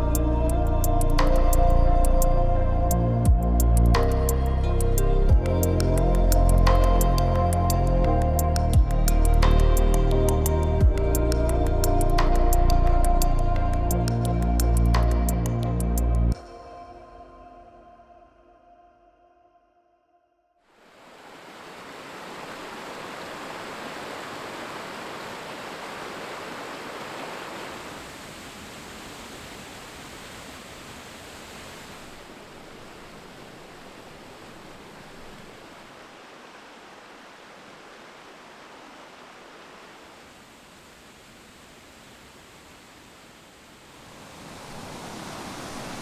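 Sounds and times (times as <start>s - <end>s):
waterfall rushing: 20.8s - 46.0s.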